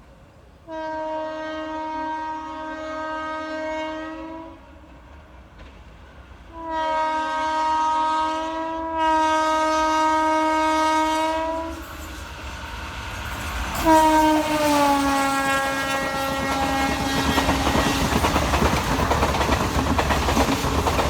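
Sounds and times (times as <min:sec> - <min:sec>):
moving train rumble: 0:00.0 - 0:21.0
train horn blast: 0:00.6 - 0:04.9, 0:06.5 - 0:11.9, 0:13.8 - 0:18.2.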